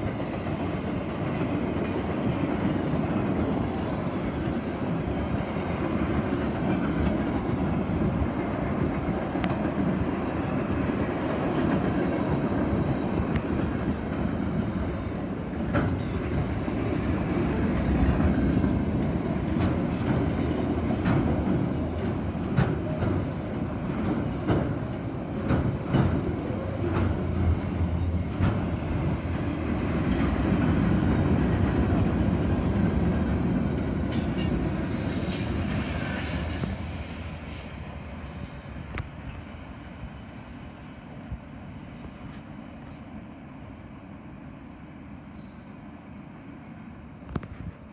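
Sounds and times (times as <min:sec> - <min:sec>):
freight train cars rumbling: 0:00.0 - 0:47.9
faint wheel squeal: 0:18.2 - 0:20.9, 0:45.4 - 0:45.8.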